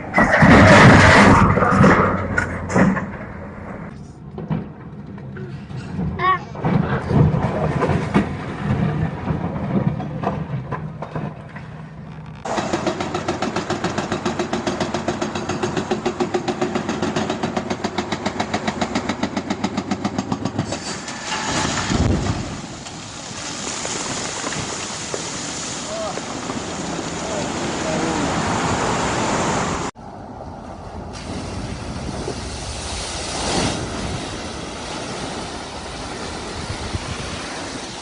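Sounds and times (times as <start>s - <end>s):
vehicle engine rumbling: 0.0s - 38.0s.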